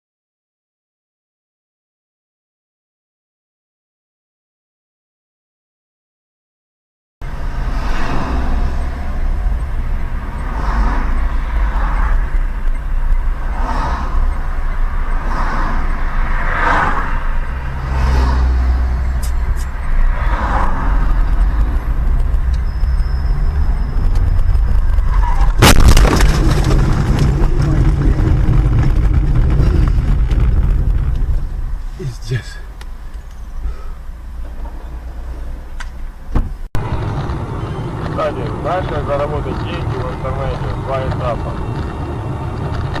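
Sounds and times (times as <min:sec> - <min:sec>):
road and engine rumble: 0:07.2 - 0:43.0
loud collision bang: 0:25.4 - 0:31.4.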